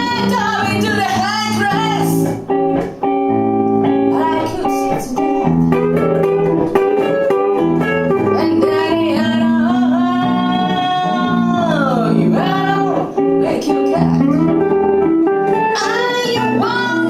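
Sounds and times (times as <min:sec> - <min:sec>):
person singing: 0:00.0 - 0:02.4, 0:04.0 - 0:06.7, 0:08.1 - 0:14.9, 0:15.6 - 0:17.0
live band with guitar: 0:00.0 - 0:17.0.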